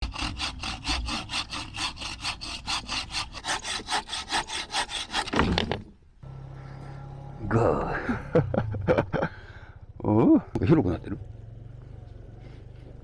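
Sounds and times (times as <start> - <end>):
hand saw cutting wood: 0.0 - 5.9.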